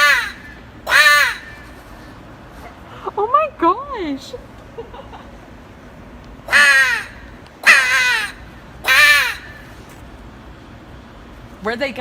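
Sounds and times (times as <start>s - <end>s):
crow cawing: 0.0s - 1.7s, 6.5s - 9.7s.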